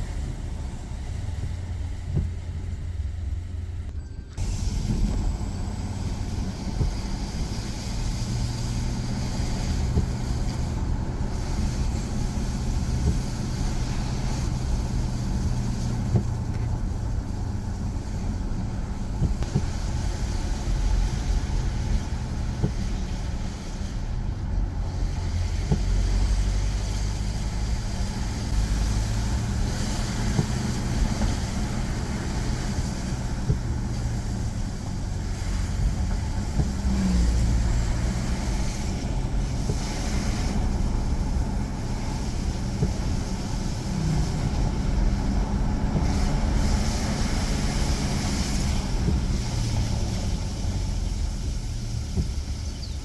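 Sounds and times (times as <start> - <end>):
road noise: 0.0 - 53.0
vehicle engine hum: 0.0 - 53.0.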